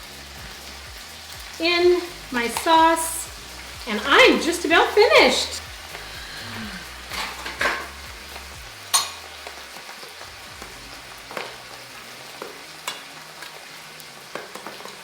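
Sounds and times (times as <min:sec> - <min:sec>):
food sizzling in a frying pan: 0:00.0 - 0:15.0
utensil clinking against pan: 0:07.1 - 0:08.0, 0:08.9 - 0:09.4.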